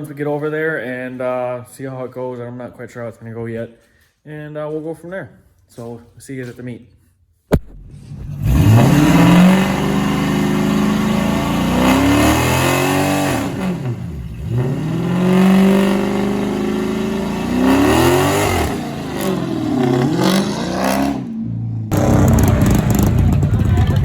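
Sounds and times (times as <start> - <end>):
engine revving hard: 7.8 - 24.0.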